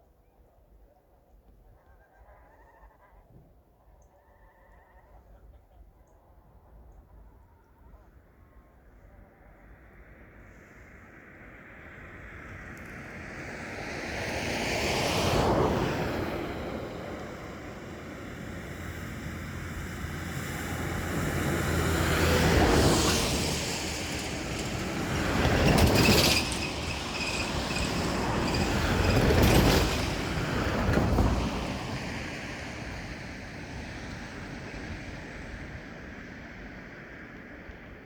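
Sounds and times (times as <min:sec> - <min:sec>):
vehicles passing: 0:10.1 - 0:38.0.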